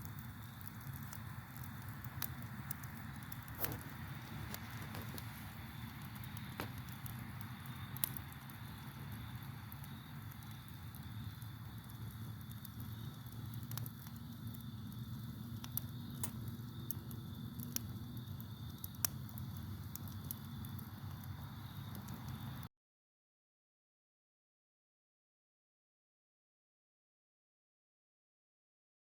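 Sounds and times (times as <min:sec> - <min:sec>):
campfire crackling and popping: 0:00.0 - 0:22.7
crickets trilling: 0:00.0 - 0:22.7.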